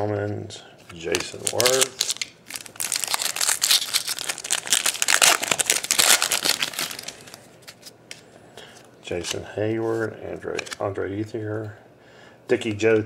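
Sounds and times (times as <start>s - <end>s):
foil wrapper crinkling: 1.2s - 7.9s.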